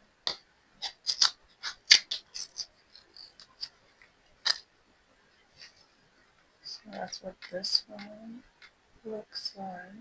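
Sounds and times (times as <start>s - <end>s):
plastic jar clicks and scrapes: 0.3s - 4.6s.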